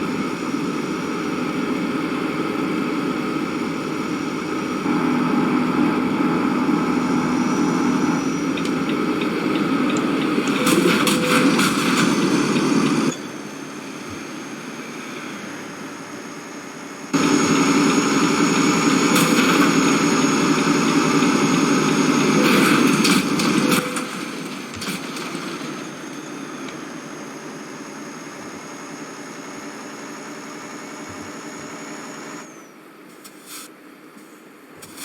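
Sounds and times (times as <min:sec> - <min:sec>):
engine running: 0:00.0 - 0:32.8
high whine sliding down: 0:04.7 - 0:13.2.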